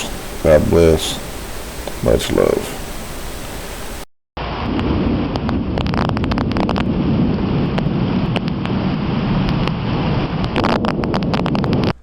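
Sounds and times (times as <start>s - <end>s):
scattered crackles: 0.0s - 12.0s
steady rumbling noise: 0.0s - 12.0s.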